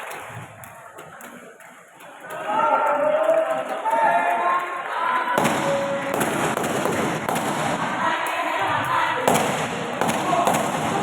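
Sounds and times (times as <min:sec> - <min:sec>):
spectators cheering and shouting: 0:02.1 - 0:11.0
sharp cracks: 0:05.4 - 0:07.9, 0:09.3 - 0:11.0.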